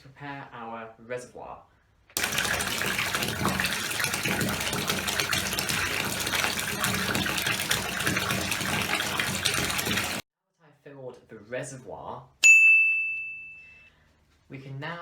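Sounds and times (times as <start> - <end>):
water gushing into reservoir: 2.2 - 10.2.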